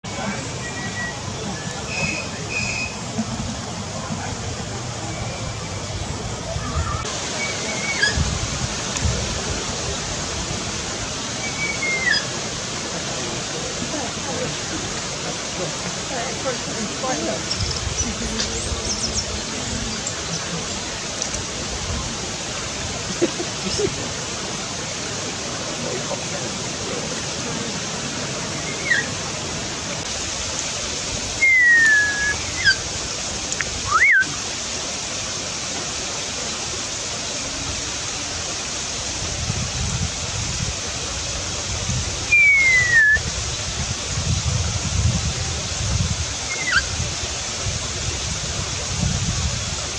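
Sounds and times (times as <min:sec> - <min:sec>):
steady rushing background noise: 0:00.0 - 0:49.9
parrot whistles gliding downward: 0:07.4 - 0:08.2, 0:11.4 - 0:12.3, 0:28.6 - 0:29.1, 0:31.4 - 0:32.8, 0:33.8 - 0:34.3, 0:42.3 - 0:43.3, 0:46.5 - 0:46.9.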